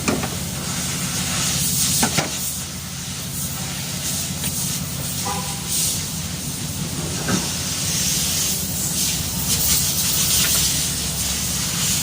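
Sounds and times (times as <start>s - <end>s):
hiss of rushing air: 0.2s - 12.0s.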